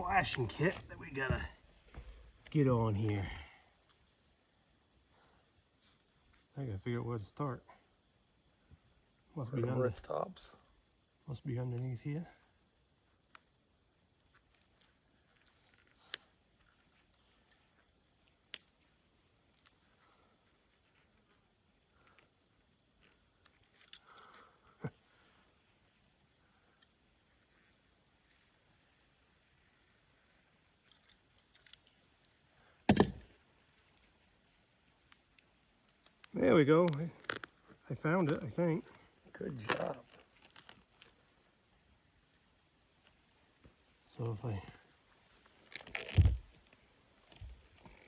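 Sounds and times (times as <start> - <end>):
high-pitched insect trill: 0.0 - 48.0
sharp knock: 32.9 - 33.2.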